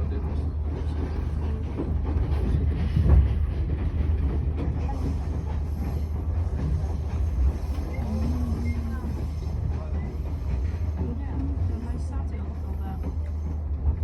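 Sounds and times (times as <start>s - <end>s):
train carriage rumble: 0.0s - 14.0s.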